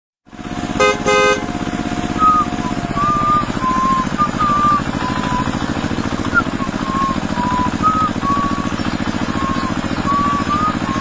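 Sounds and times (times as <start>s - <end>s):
tractor engine chugging: 0.3s - 11.0s
short horn toots: 0.8s - 1.6s
wavering whistling chirps: 2.1s - 11.0s.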